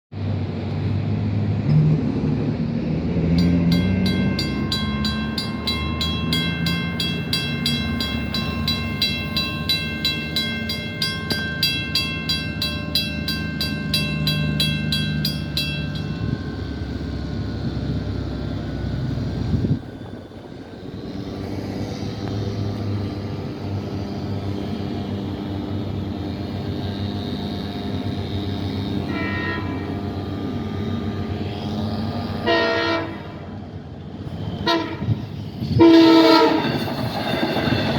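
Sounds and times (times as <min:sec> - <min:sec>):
train rumbling past: 0:00.2 - 0:37.9
crossing bell ringing: 0:03.3 - 0:24.0, 0:34.4 - 0:37.9
train horn: 0:24.6 - 0:33.6, 0:34.5 - 0:36.9.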